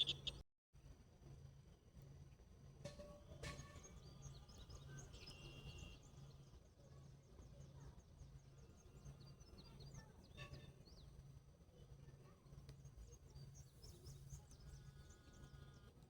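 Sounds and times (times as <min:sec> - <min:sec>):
small bird chirps: 0:00.0 - 0:00.4.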